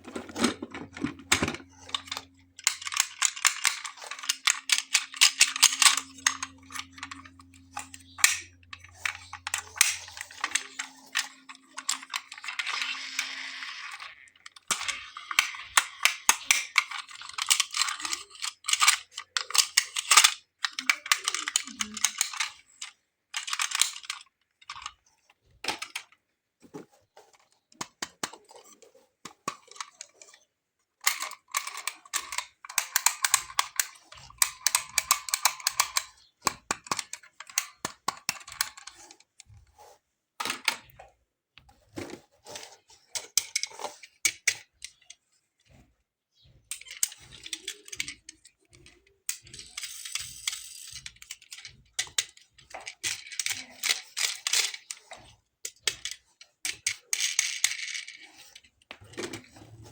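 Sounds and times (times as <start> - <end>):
toy cars clicking: 0.0 - 41.0, 42.0 - 59.9.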